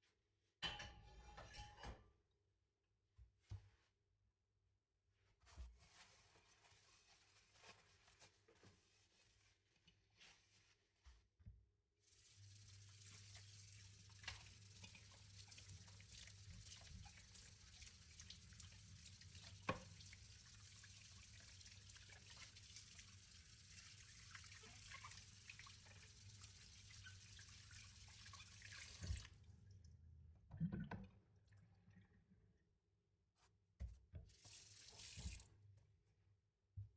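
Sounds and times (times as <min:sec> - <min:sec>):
tap running into sink: 0:12.9 - 0:22.7, 0:24.4 - 0:29.4, 0:34.1 - 0:35.5.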